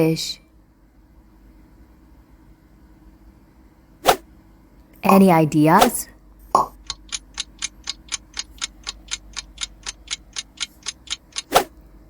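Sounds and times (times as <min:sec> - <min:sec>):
clock ticking: 0:06.6 - 0:11.7.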